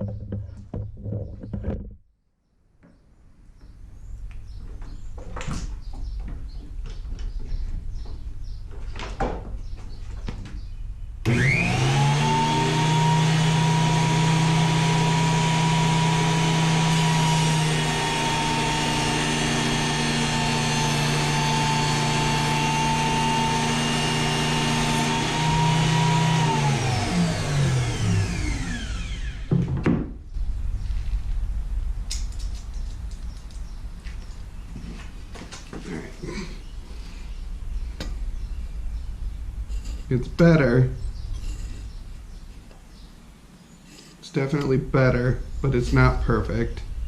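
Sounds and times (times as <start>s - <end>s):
jointer motor humming and whining: 11.3s - 29.5s.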